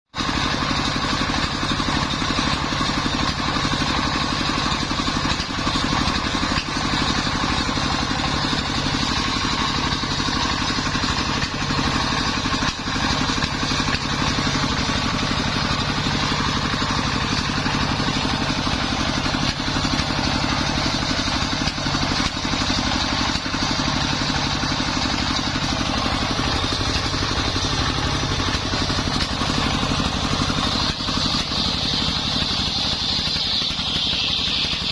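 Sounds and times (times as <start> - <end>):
sawmill engine droning: 0.2 - 34.9.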